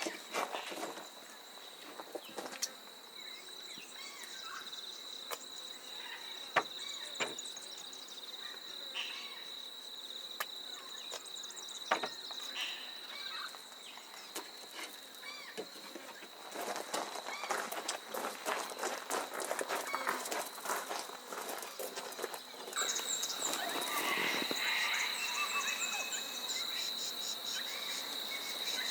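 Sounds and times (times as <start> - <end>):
high thin insect drone: 0.0 - 28.9
bird chirps: 22.7 - 28.9.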